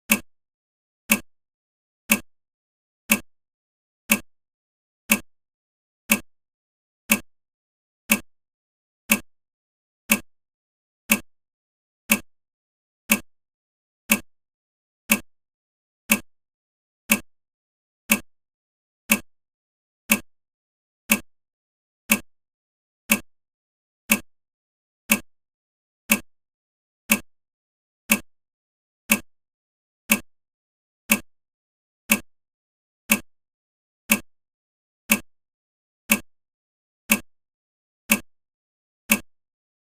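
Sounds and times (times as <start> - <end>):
sharp ticks: 1.1 - 1.3, 2.1 - 2.3, 9.1 - 9.3, 11.1 - 11.3, 13.1 - 13.3, 14.1 - 14.3, 15.1 - 15.3, 16.1 - 16.3, 20.1 - 20.3, 23.1 - 23.3, 26.1 - 26.3, 27.1 - 27.3, 28.1 - 28.3, 29.1 - 29.3, 30.1 - 30.3, 31.1 - 31.3, 32.1 - 32.3, 33.1 - 33.3, 34.1 - 34.3, 35.1 - 35.3, 36.1 - 36.3, 37.1 - 37.3, 38.1 - 38.3, 39.1 - 39.3.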